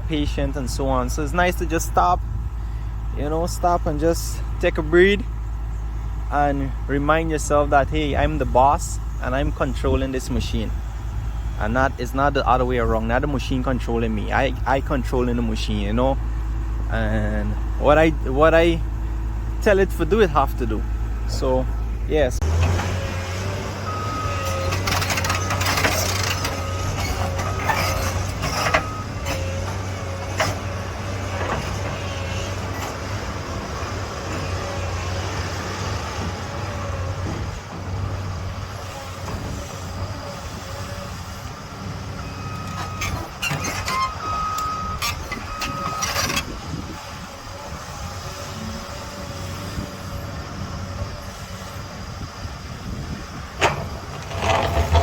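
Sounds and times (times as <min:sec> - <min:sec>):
excavator diesel engine running: 0:00.0 - 0:55.0
backup alarm beeping: 0:43.9 - 0:46.2.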